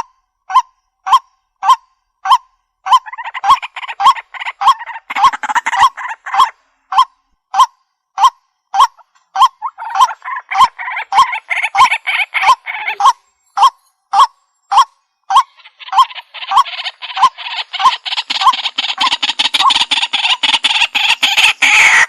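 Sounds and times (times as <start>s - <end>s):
waterhen calling: 2.9s - 7.0s, 8.8s - 22.0s.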